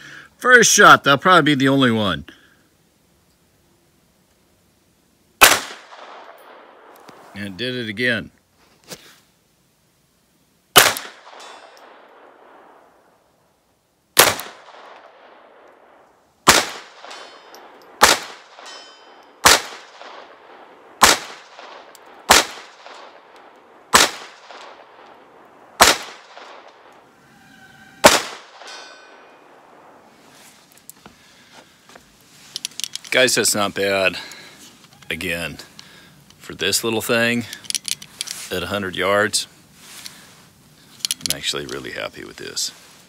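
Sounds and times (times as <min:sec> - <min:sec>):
pistol shots with echo: 0:05.4 - 0:06.9, 0:10.8 - 0:12.8, 0:14.2 - 0:15.6, 0:16.4 - 0:25.2, 0:25.8 - 0:26.9, 0:28.0 - 0:30.0.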